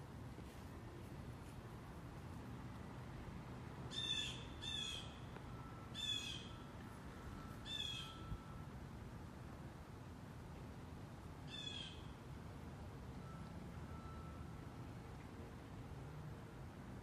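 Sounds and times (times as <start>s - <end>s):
bird calling: 3.9s - 5.2s, 7.6s - 8.2s.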